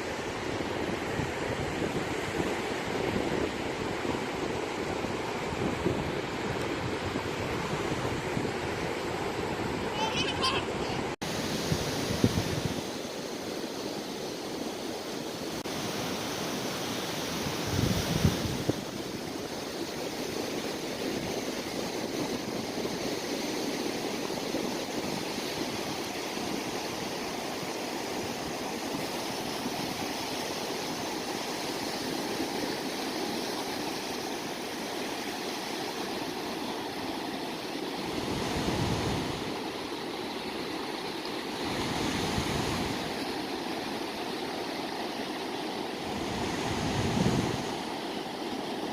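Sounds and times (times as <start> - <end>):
wind rumble on microphone: 0.0 - 10.0, 11.0 - 12.9, 17.4 - 27.2, 38.0 - 39.6, 41.6 - 43.1, 46.0 - 47.8
sea surf washing on shore: 0.0 - 48.9.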